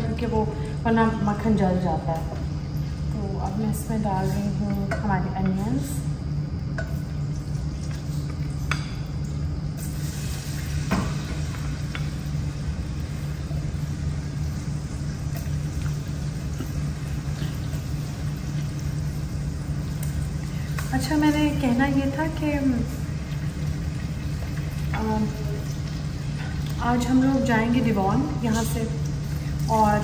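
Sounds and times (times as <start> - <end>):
onions sizzling in a saucepan: 6.9 - 30.0.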